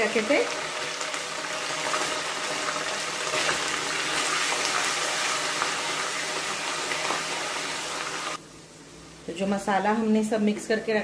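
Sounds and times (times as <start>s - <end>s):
paste sizzling in hot oil: 0.0s - 8.4s.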